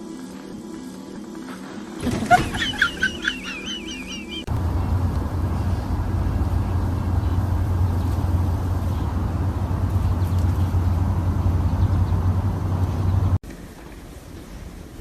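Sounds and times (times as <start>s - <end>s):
loud low rumble: 4.5s - 13.4s.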